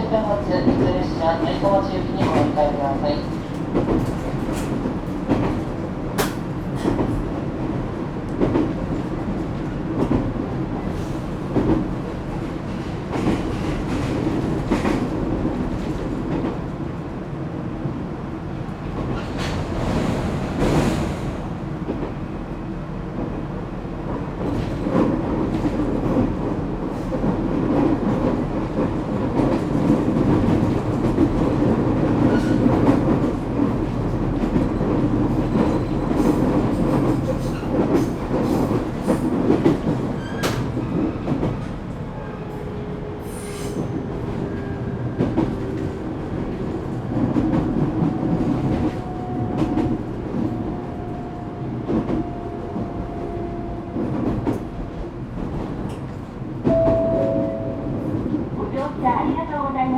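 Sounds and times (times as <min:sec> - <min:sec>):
train wheels rumbling on rail: 0:00.0 - 0:59.9
rail-joint clicks: 0:03.4 - 0:07.3, 0:35.4 - 0:41.8, 0:54.0 - 0:59.0.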